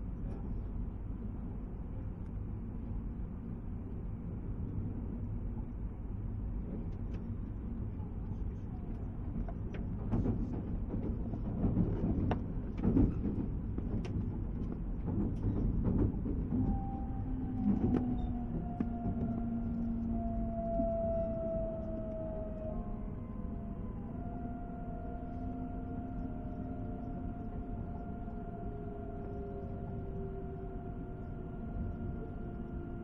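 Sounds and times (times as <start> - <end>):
train running rumble: 0.0 - 33.0
electric motor whine: 18.3 - 33.0.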